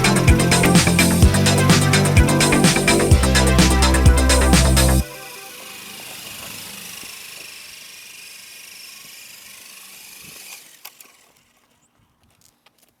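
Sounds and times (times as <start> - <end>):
rc helicopter motor whirring: 5.0 - 12.6.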